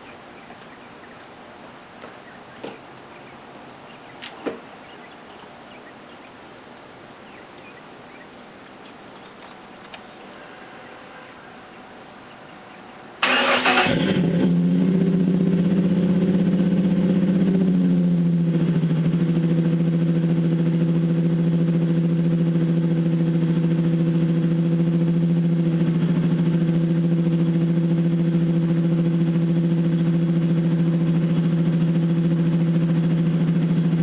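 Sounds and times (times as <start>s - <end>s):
truck engine starting and idling: 13.2s - 34.0s.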